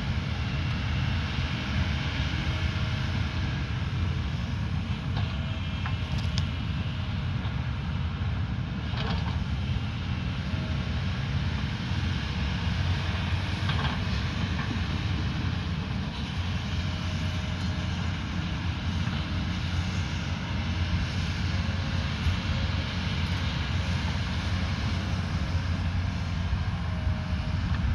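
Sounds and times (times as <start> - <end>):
heavy machine diesel engine: 0.0 - 27.9.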